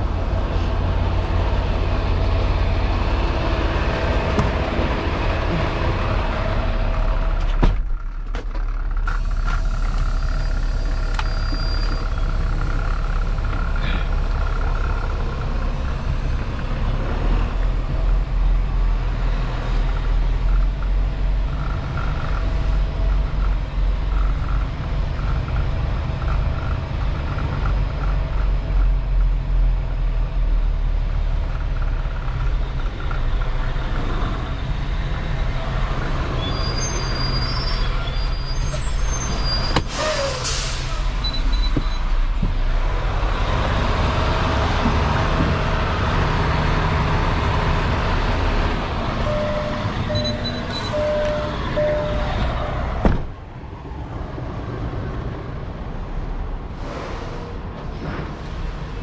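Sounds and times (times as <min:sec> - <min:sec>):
diesel truck engine rumbling: 0:00.0 - 0:59.0
air hiss: 0:39.8 - 0:41.2.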